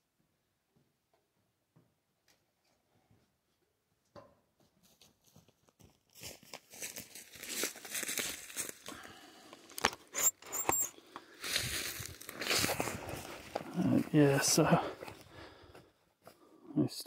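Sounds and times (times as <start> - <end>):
short high squeaks: 10.1 - 11.0.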